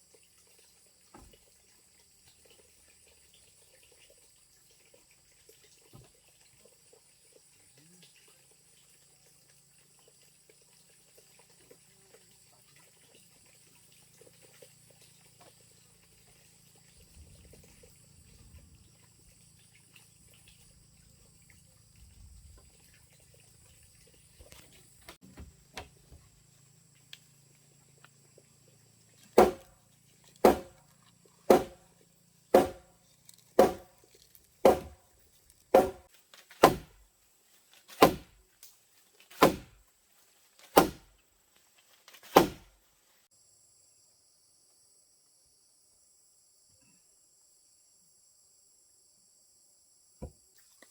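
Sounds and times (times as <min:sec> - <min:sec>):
crickets chirping: 0:00.0 - 0:38.2, 0:43.3 - 0:50.9
heavy strikes on wood: 0:29.4 - 0:29.7, 0:30.4 - 0:30.8, 0:31.5 - 0:31.8, 0:32.6 - 0:32.9, 0:33.6 - 0:33.9, 0:34.6 - 0:35.0, 0:35.7 - 0:36.9, 0:38.0 - 0:38.3, 0:39.4 - 0:39.7, 0:40.8 - 0:41.0, 0:42.4 - 0:42.6.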